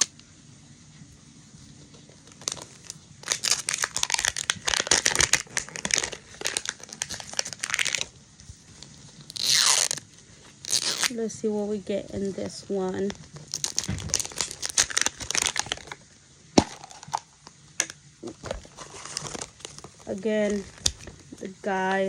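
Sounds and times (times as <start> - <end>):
plastic packaging tearing: 0.0 - 0.2, 2.0 - 8.2, 8.8 - 11.3, 12.2 - 16.0, 16.6 - 21.4
plastic packaging crinkling: 0.0 - 0.3, 1.7 - 21.9.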